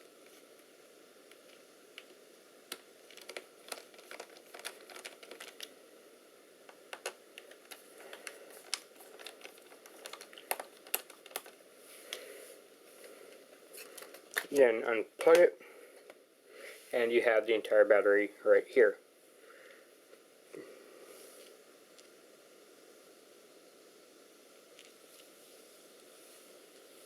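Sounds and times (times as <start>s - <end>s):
soft rustling: 7.4s - 14.4s, 24.8s - 27.0s.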